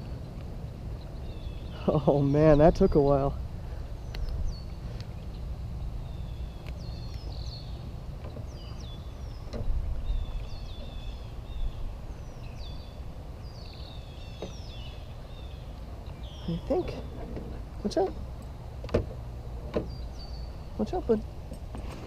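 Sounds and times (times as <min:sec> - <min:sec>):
small birds chirping: 0:00.0 - 0:22.0
steady low rumble: 0:00.0 - 0:22.0
light knocks: 0:18.8 - 0:20.0.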